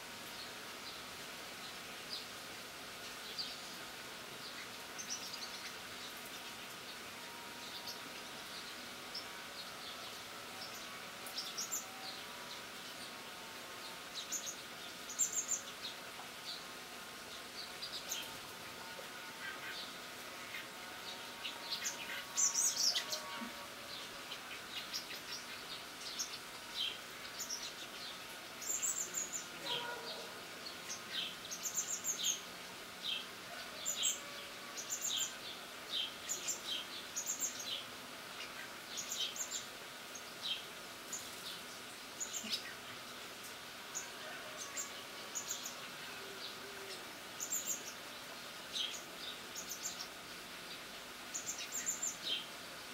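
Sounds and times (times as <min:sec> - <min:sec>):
birds chirping: 0:19.4 - 0:32.5.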